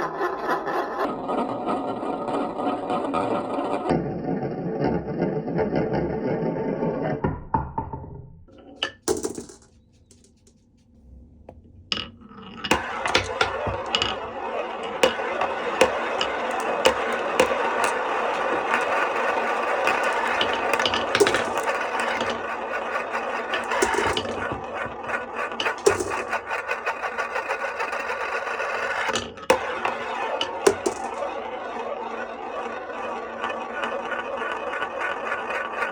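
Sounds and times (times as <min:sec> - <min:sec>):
marbles rolling down wooden track: 0:08.6 - 0:10.5, 0:11.5 - 0:32.0, 0:33.0 - 0:35.9.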